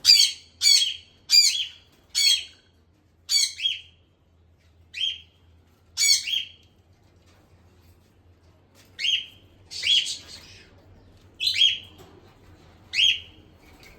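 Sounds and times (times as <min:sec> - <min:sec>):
pet birds squawking: 0:00.0 - 0:02.6, 0:03.3 - 0:03.9, 0:06.0 - 0:06.6, 0:09.0 - 0:10.8, 0:11.4 - 0:11.9, 0:12.9 - 0:13.3.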